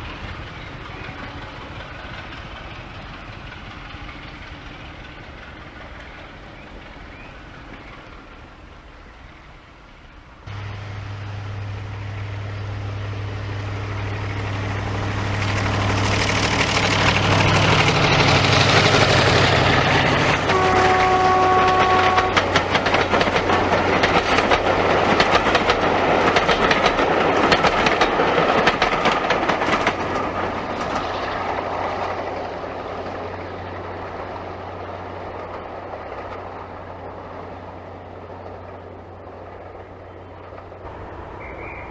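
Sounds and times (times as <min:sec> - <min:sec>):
diesel locomotive engine hum: 0:00.0 - 0:41.9
wheels clattering over rail joints: 0:12.6 - 0:41.9
train horn blast: 0:20.4 - 0:22.6.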